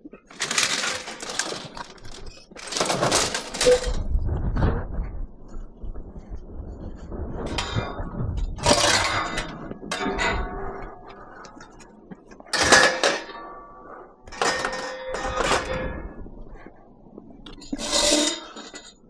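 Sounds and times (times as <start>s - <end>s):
scrap metal clanking: 0.3s - 4.1s, 8.6s - 11.7s, 12.6s - 13.7s, 14.3s - 16.0s, 17.5s - 19.0s.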